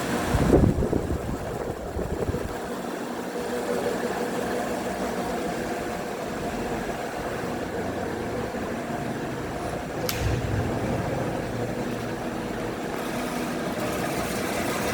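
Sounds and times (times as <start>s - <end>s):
ceiling fan motor hum and whir: 0.0s - 14.9s.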